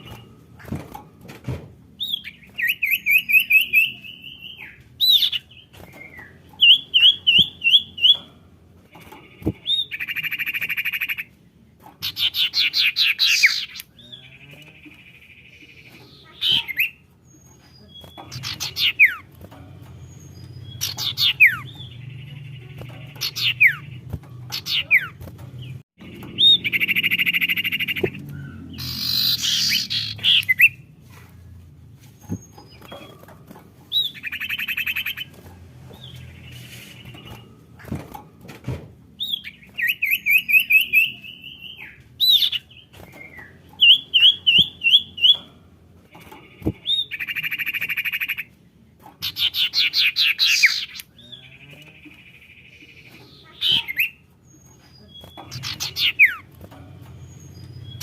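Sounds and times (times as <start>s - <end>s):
bird calls with trills and whistles: 15.7s - 19.3s, 20.1s - 30.9s, 49.2s - 56.5s.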